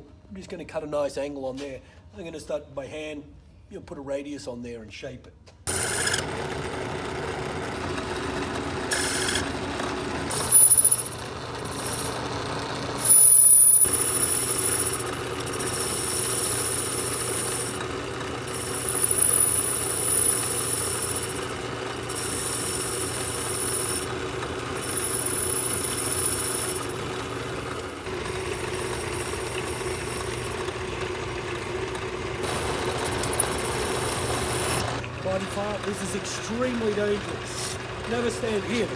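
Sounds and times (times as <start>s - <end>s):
metal lathe running: 5.7s - 38.9s
high thin cutting whine: 10.3s - 30.8s, 32.4s - 35.0s.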